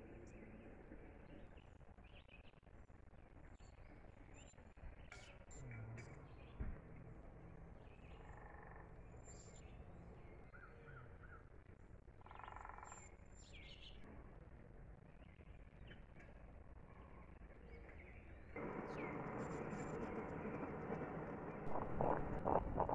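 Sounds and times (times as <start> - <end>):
bird chirps: 16.9 - 20.5.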